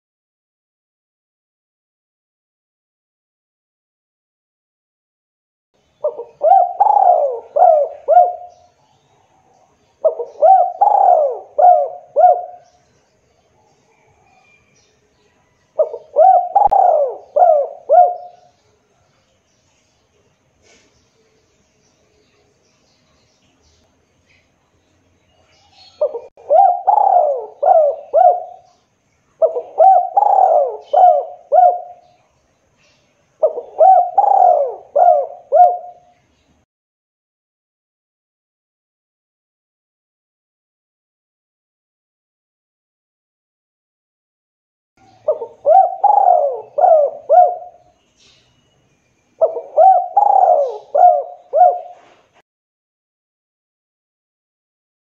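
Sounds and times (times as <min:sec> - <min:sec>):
dove cooing: 0:06.0 - 0:08.7, 0:10.0 - 0:12.8, 0:15.8 - 0:18.6, 0:25.8 - 0:28.8, 0:29.4 - 0:32.2, 0:33.4 - 0:36.1, 0:45.0 - 0:47.9, 0:49.4 - 0:52.4.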